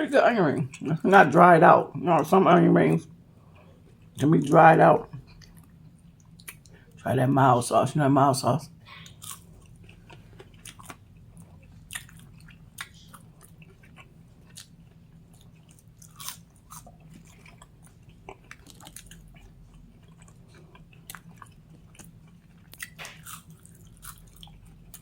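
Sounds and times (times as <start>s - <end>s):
crunchy chewing: 9.0s - 25.0s.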